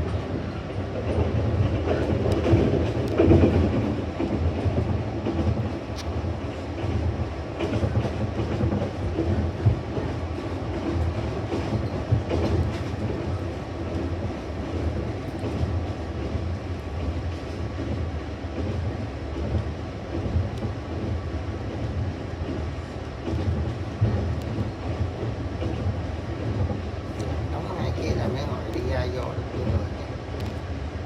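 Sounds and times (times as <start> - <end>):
train rumbling on track: 0.0 - 31.0
wheels clattering over rails: 1.0 - 5.8.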